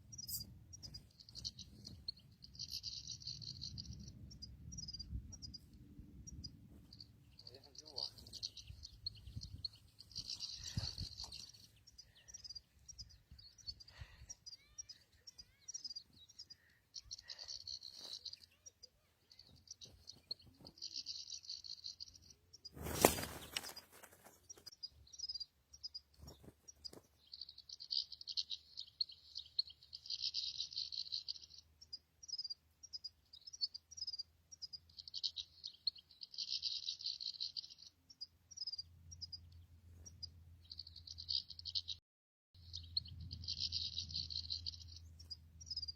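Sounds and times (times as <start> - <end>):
goldfinch twittering: 6.4 - 18.7.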